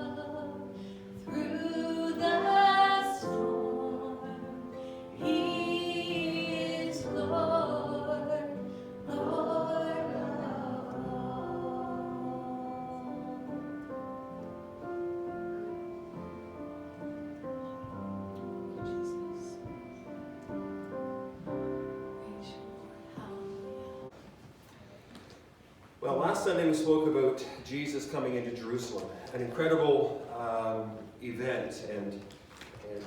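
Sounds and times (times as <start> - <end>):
choir singing gospel: 0.0 - 14.3
instrumental accompaniment: 0.0 - 24.2.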